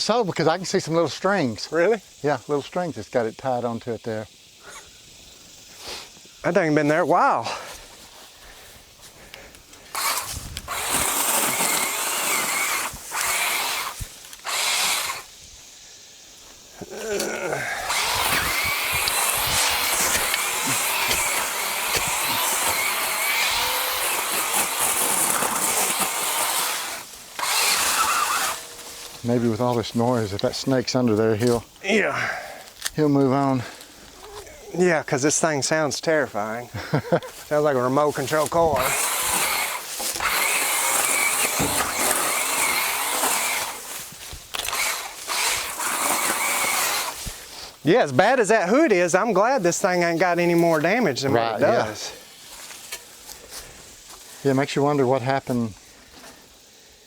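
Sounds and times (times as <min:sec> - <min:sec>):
power tool whining: 0:09.3 - 0:15.5, 0:16.8 - 0:31.6, 0:37.3 - 0:47.7.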